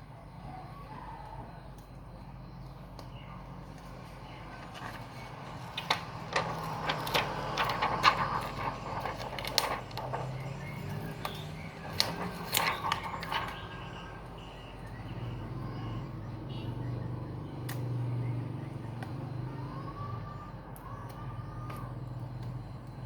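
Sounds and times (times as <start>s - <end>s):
steady low hum: 1.5s - 18.9s
packaging clicks and rustles: 1.8s - 15.0s.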